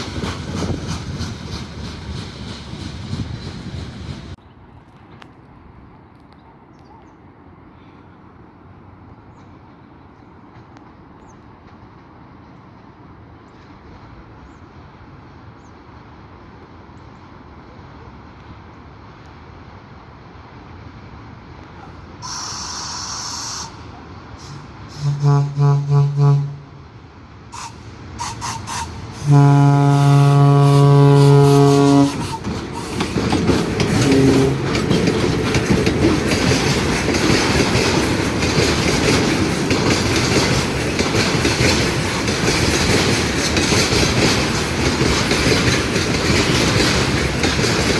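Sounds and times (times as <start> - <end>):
train wheels clattering over rails: 0.0 - 4.4, 27.6 - 47.9
train horn: 22.2 - 26.9, 27.5 - 33.0, 33.8 - 34.9.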